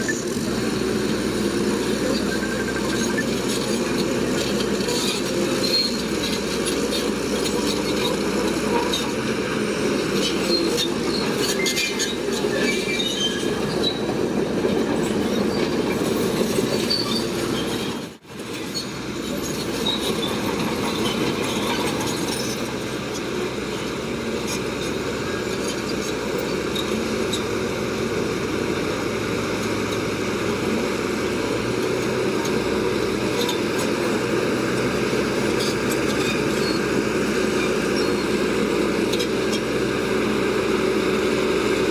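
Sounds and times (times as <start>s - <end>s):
bulldozer diesel engine running: 0.0s - 41.9s
high metallic squeaks: 5.0s - 7.0s, 10.2s - 14.1s, 15.2s - 18.0s.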